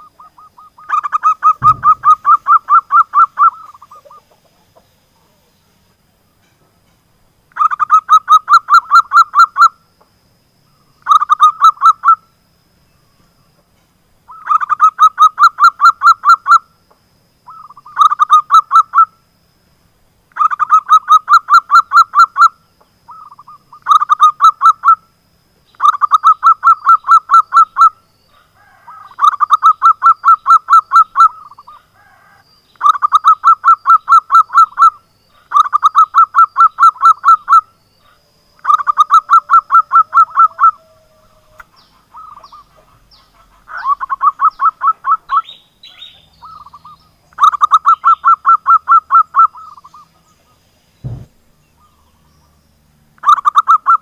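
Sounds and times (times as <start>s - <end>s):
dove song staccato notes: 0.0s - 4.9s, 25.7s - 28.0s, 38.6s - 41.0s, 53.2s - 54.0s.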